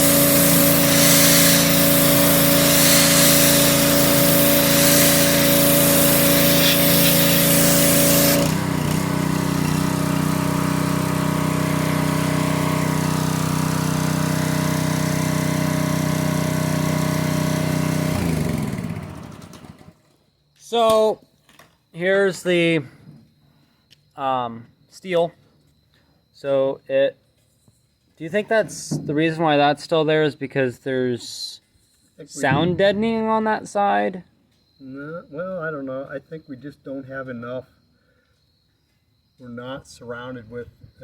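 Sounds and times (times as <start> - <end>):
pressure washer spray hiss: 0.0 - 18.1
small gasoline engine running: 0.0 - 20.0.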